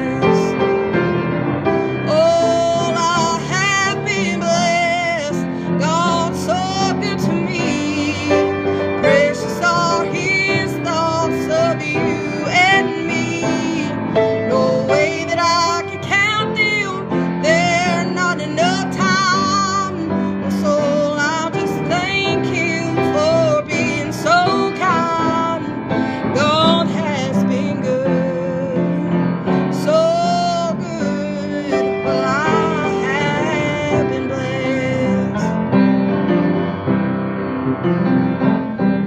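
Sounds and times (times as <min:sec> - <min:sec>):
woman singing with vibrato: 0:00.0 - 0:00.8, 0:01.8 - 0:35.6
instrumental accompaniment: 0:00.0 - 0:39.0.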